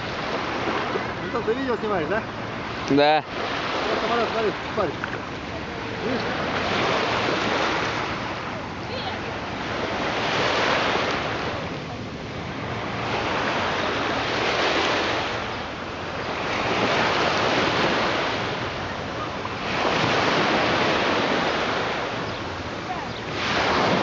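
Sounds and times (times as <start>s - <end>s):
waves washing onto shore: 0.0s - 24.0s.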